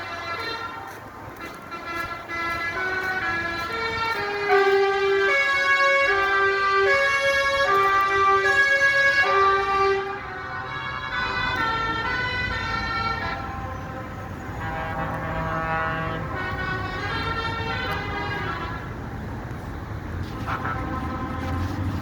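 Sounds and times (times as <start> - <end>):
truck engines rumbling: 0.0 - 22.0
truck sirens and horns: 0.0 - 22.0.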